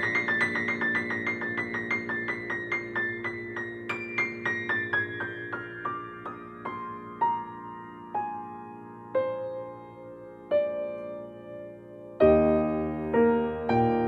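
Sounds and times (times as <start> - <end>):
calm piano music: 0.0 - 14.0.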